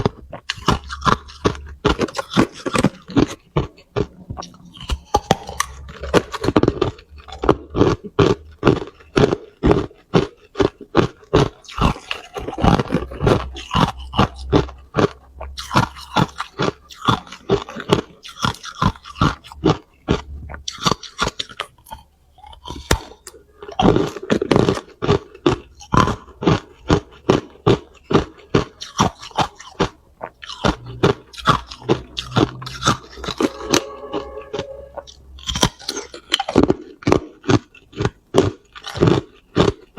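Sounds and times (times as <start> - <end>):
ice being chewed: 0.0 - 33.5, 35.0 - 39.9.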